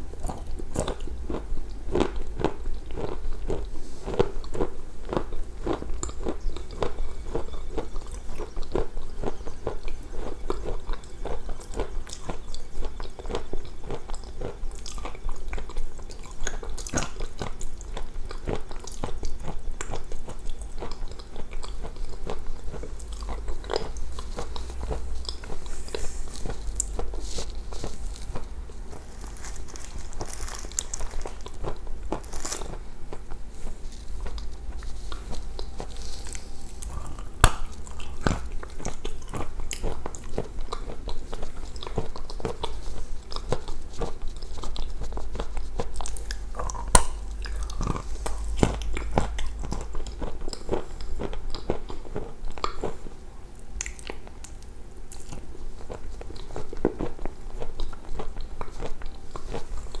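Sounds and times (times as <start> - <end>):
person chewing food: 0.0 - 60.0
crisp crunches: 21.8 - 53.0.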